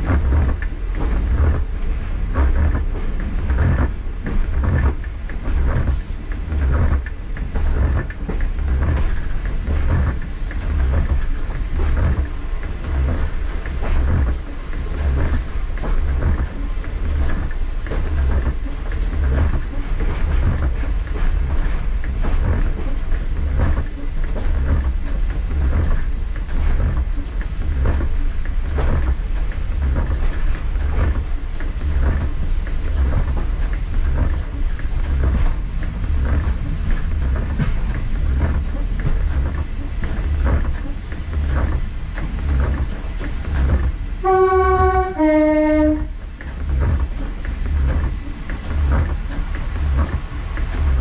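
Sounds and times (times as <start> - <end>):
train engine drone: 0.0 - 51.0
two-tone train horn: 44.2 - 46.2.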